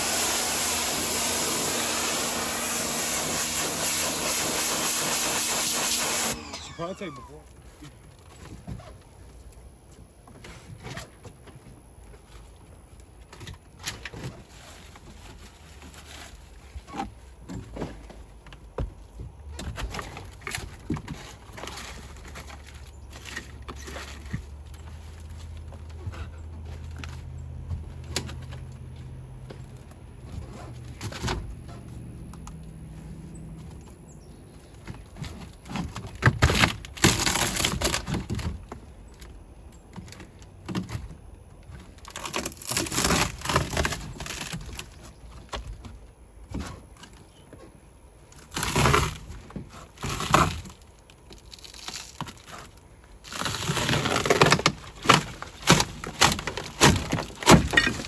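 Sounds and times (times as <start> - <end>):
material cracking and crunching: 35.0 - 39.3, 41.8 - 45.8, 48.4 - 58.0.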